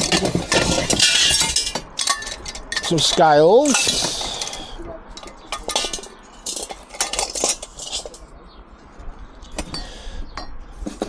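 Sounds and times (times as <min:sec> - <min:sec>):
metal scrap clinking: 0:00.0 - 0:08.3.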